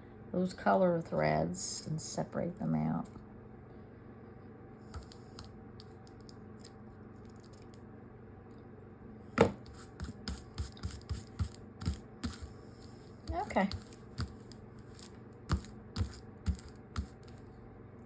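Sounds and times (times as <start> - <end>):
scissors snipping fabric: 13.2 - 17.4.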